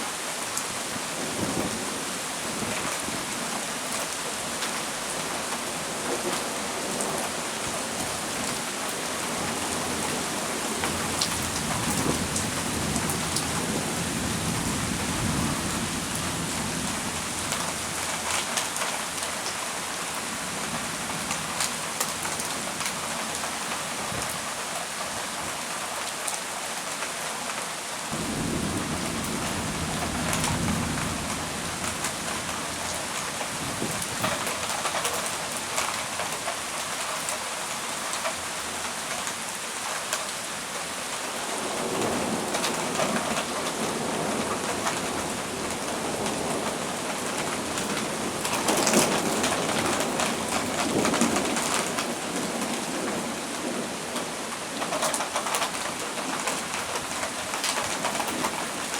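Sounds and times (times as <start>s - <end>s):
heavy rain pouring: 0.0s - 58.9s
thunder rumbling: 28.1s - 33.0s.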